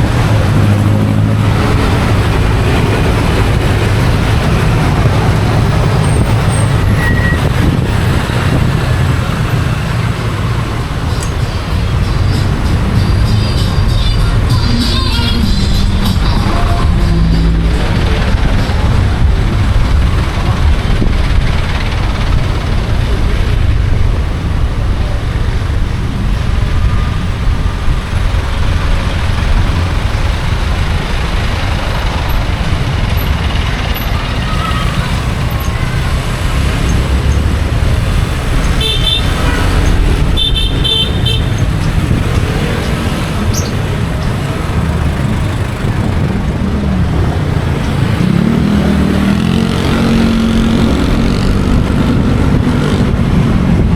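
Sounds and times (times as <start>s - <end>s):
motorcycle engine rumble: 0.0s - 53.9s
road noise: 0.0s - 53.9s
vehicle horn toots: 38.7s - 41.6s.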